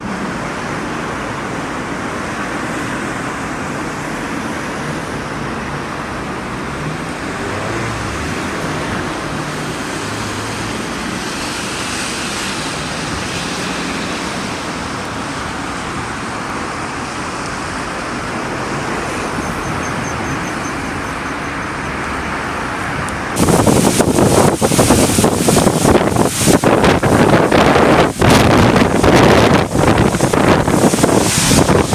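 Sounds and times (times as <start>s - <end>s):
road traffic passing: 0.0s - 31.9s
wind buffeting microphone: 23.0s - 31.9s.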